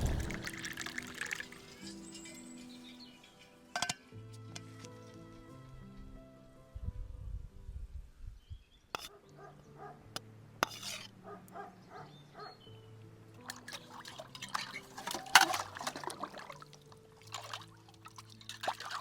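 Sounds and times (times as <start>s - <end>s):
liquid pouring: 0.0s - 1.9s, 13.4s - 19.0s
soft background music: 0.0s - 19.0s.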